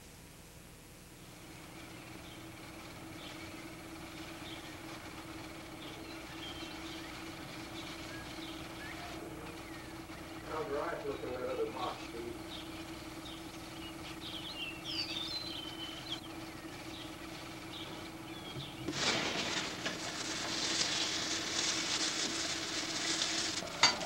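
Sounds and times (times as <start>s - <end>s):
steady low hum: 0.0s - 24.0s
small birds chirping: 1.6s - 18.9s
food frying in a pan: 18.9s - 24.0s.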